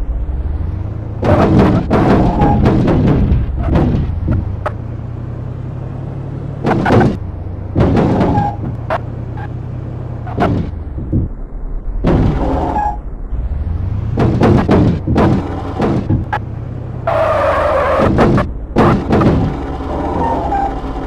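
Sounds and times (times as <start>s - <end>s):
car engine rumbling: 0.0s - 21.0s
sharp cracks and bangs: 12.0s - 12.8s, 14.1s - 16.4s.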